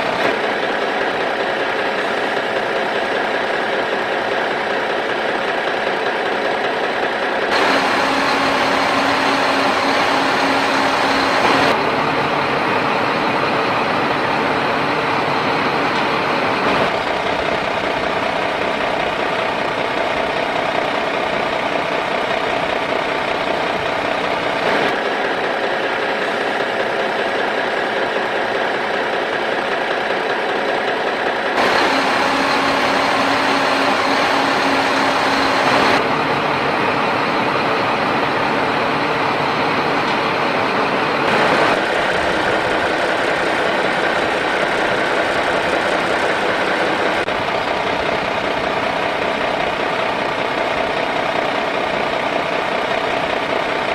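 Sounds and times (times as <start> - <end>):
motor humming: 7.5 - 13.5, 31.6 - 51.7.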